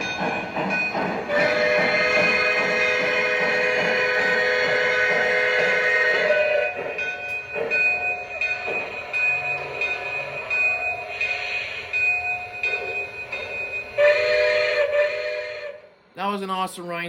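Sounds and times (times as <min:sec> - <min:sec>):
model train running: 0:00.0 - 0:17.0.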